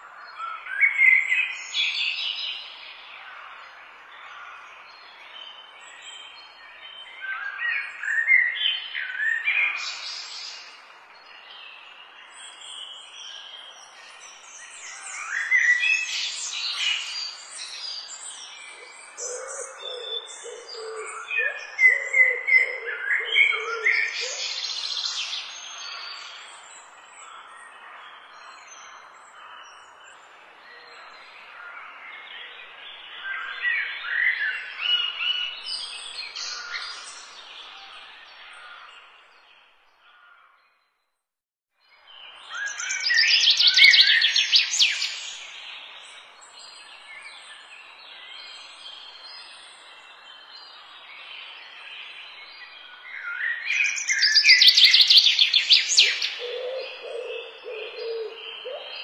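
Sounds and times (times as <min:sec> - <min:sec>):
birds chirping and whistling: 0:53.2 - 0:59.0.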